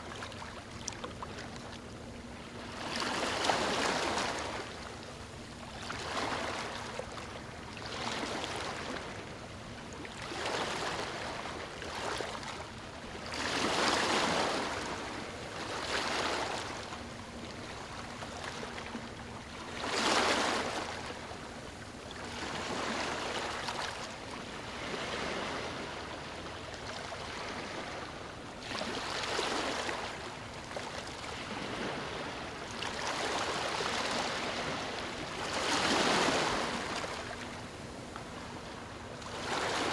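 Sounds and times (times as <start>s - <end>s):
ocean waves breaking: 22.3s - 39.9s.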